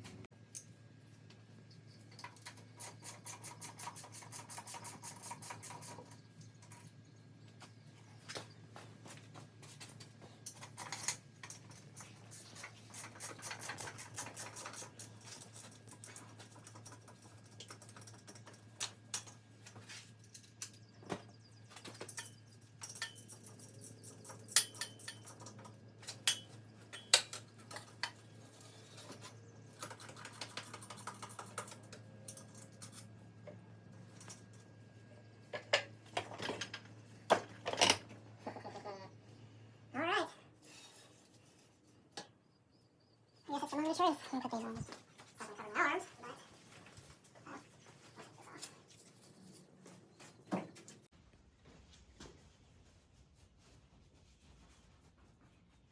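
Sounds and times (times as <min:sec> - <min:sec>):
tools and metal parts clinking: 0:09.7 - 0:34.8, 0:40.6 - 0:42.3, 0:46.2 - 0:51.0.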